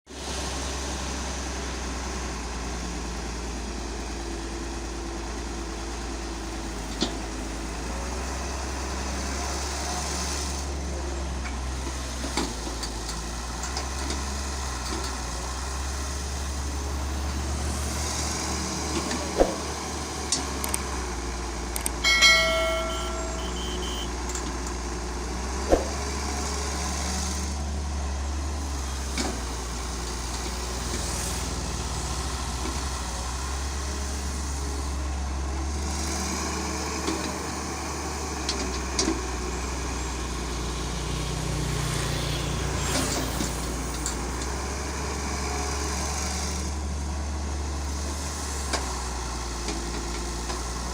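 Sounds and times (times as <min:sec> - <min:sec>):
large vehicle engine running: 0:00.1 - 0:50.9
brief beeping tone: 0:22.0 - 0:24.2.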